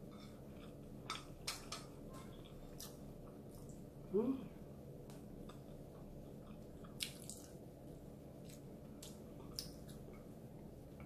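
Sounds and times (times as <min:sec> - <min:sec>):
wet chewing and mouth smacks: 0:05.1 - 0:07.6, 0:08.4 - 0:10.3.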